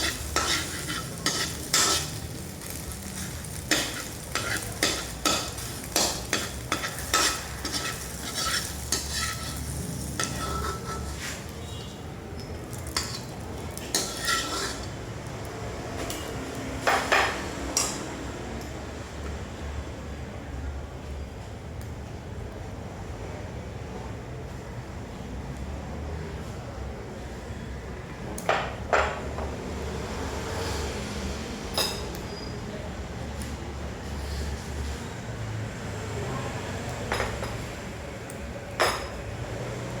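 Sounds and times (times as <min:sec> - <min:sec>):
spatula scraping a pan: 0:00.0 - 0:12.0, 0:12.7 - 0:15.0
frying sizzle: 0:00.0 - 0:19.2.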